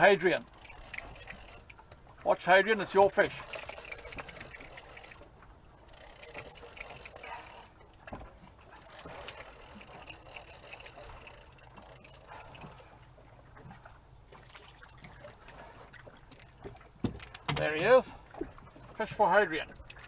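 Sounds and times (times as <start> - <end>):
water lapping against boat hull: 0.0 - 20.0
small clicks and knocks: 16.3 - 18.6.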